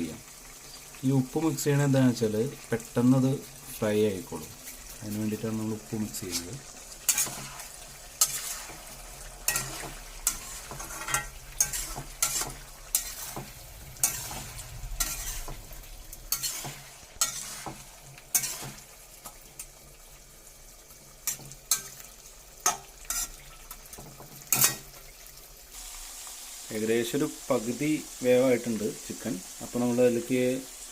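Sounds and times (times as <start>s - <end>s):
chicken sizzling in a pan: 0.0s - 30.9s
spoon scraping and knocking pan: 6.2s - 19.7s, 21.2s - 22.0s, 22.6s - 25.0s.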